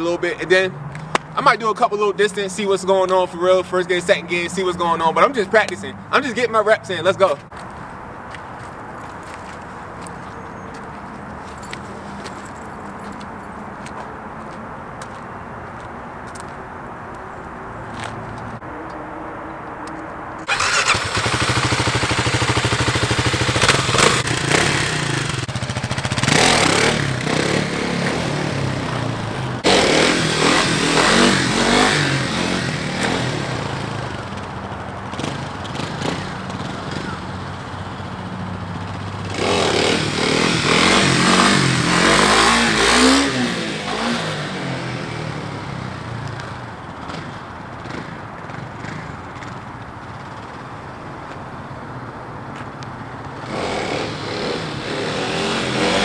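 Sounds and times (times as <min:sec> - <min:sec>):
motorcycle engine revving hard: 0:20.4 - 0:38.1, 0:38.8 - 0:49.1, 0:53.3 - 0:56.0.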